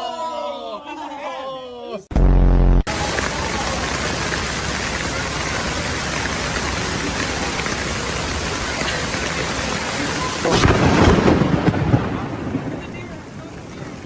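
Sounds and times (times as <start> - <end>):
heavy rain hissing: 2.9 - 14.0
low rumble of thunder: 10.4 - 14.0.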